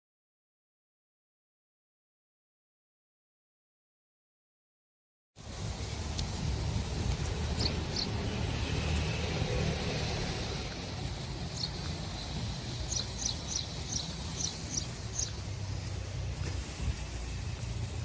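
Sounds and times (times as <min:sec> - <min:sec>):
steady low rumble: 0:05.4 - 0:18.0
small bird chirping: 0:07.2 - 0:08.2, 0:11.4 - 0:15.4.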